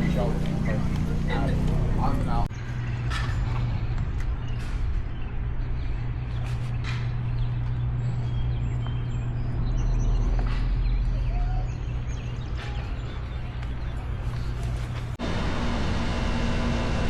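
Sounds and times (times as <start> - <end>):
motorcycle engine running: 0.0 - 2.5, 15.2 - 17.0
road and wind noise: 0.0 - 17.0.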